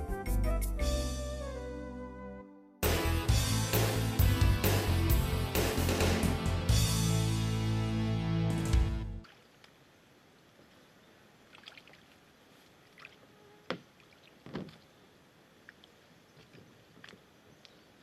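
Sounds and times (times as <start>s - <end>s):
water knocks and splashes: 13.0s - 14.9s.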